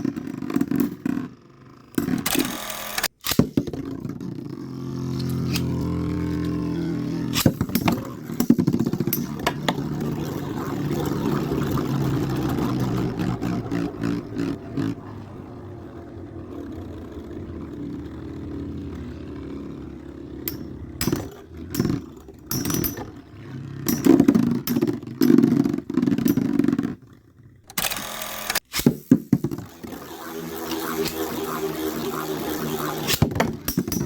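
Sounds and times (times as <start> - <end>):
spinning tops whirring: 2.0 - 15.0, 15.8 - 27.0, 27.7 - 34.0
spinning tops clacking: 6.3 - 14.8, 20.5 - 23.2, 23.9 - 26.9, 27.8 - 34.0.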